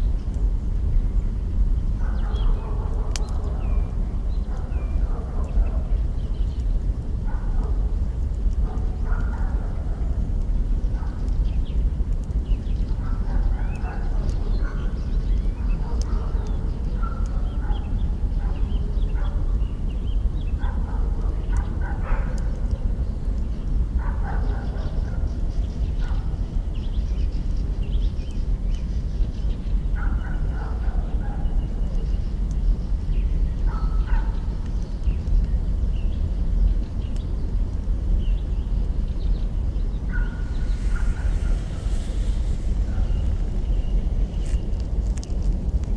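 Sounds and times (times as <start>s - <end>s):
steady low rumble: 34.6s - 45.9s
campfire burning with crackles: 36.4s - 45.9s
birds chirping: 38.3s - 45.0s.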